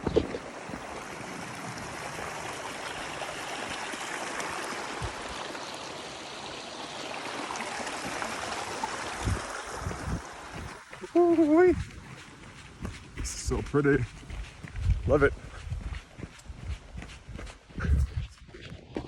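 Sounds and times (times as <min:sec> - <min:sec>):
mountain stream rushing: 0:00.0 - 0:14.7.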